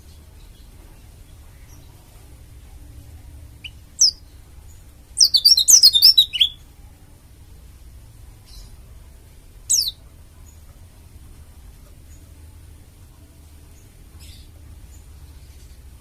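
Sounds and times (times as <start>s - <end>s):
bird singing: 3.5s - 6.7s, 9.7s - 10.0s.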